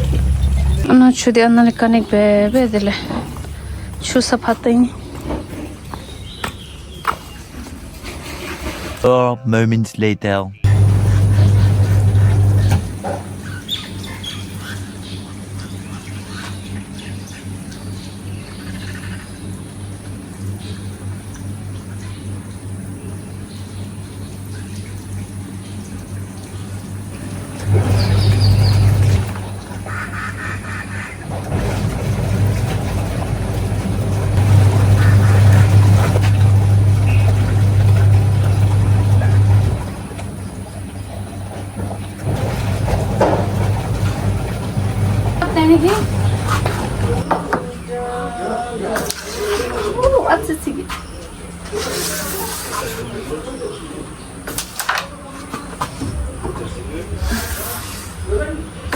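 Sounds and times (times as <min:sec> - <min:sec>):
steady low hum: 0:00.0 - 0:08.2, 0:10.6 - 0:54.5, 0:55.2 - 0:58.9
birds chirping and squawking: 0:00.0 - 0:09.0, 0:10.6 - 0:58.9
loud low sound: 0:56.0 - 0:58.9.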